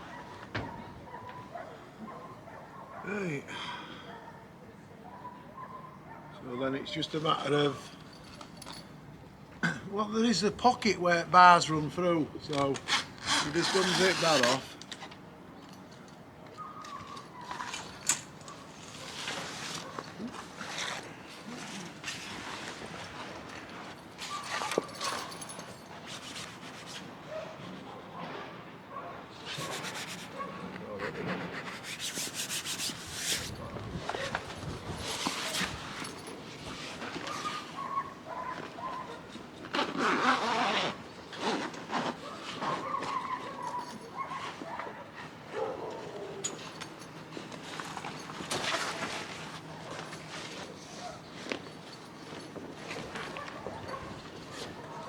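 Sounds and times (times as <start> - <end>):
frame bar squeaking: 12.6 - 14.7
canvas fabric rustling: 12.9 - 14.6, 17.5 - 27.1, 31.9 - 45.7, 46.6 - 55.0.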